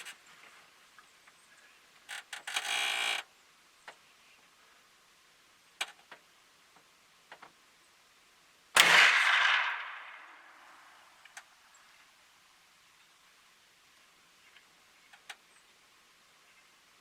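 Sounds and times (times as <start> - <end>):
gunshot blast: 8.8 - 10.9
faint clicks: 11.2 - 12.1, 14.4 - 15.6.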